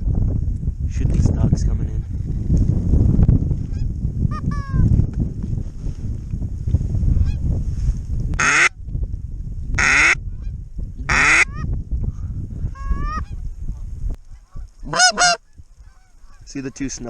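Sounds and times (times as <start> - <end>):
wind rumble on microphone: 0.0 - 17.0
geese honking: 14.3 - 17.0.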